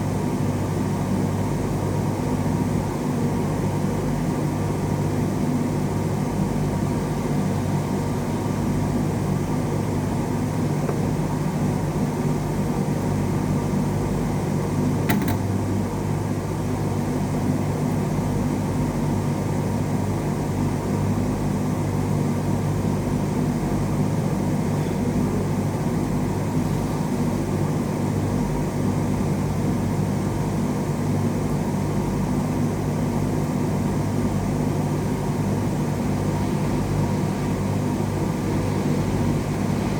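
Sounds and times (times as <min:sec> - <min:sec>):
machine hum with low buzz: 0:00.0 - 0:39.9
sharp click: 0:15.1 - 0:15.5.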